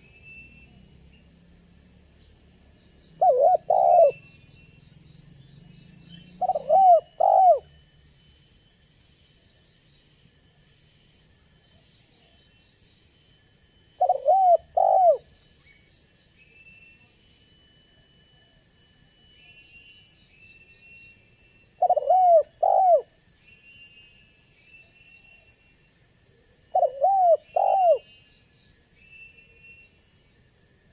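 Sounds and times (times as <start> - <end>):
dove cooing: 3.2 - 4.2, 6.4 - 7.7, 14.0 - 15.2, 21.8 - 23.1, 26.8 - 28.0.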